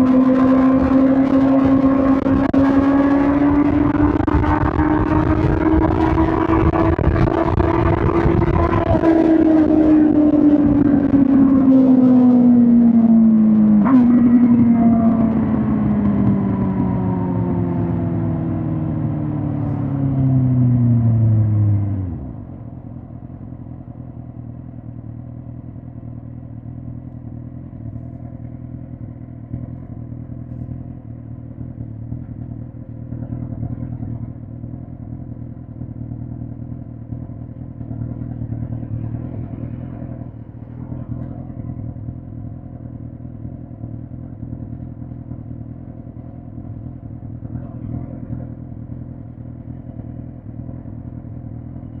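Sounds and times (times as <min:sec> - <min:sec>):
motorcycle engine slowing to idle: 0:00.0 - 0:52.0.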